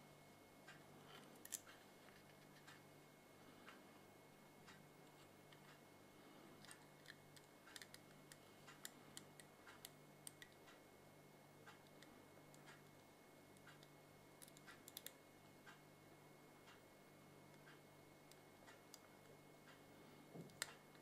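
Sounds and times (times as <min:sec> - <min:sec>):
steady low hum: 0:00.0 - 0:21.0
faint small clicks and ticks: 0:00.6 - 0:02.9, 0:06.6 - 0:10.8, 0:11.6 - 0:15.8, 0:17.5 - 0:21.0.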